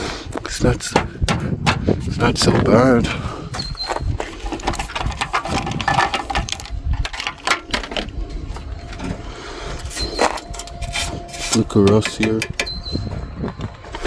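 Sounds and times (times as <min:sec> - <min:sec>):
tools and car parts clicking: 0:00.8 - 0:02.2, 0:04.3 - 0:08.1, 0:09.8 - 0:13.0
low rumble: 0:05.6 - 0:14.0.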